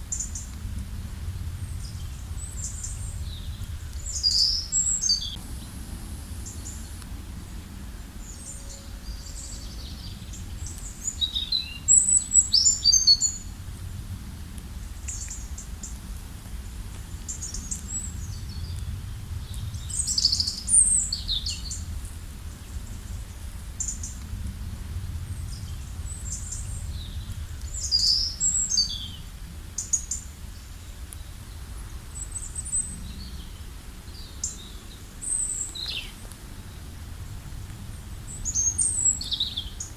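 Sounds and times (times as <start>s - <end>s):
steady low rumble: 0.0s - 39.9s
songbirds chirping and trilling: 1.3s - 13.6s, 25.0s - 39.9s.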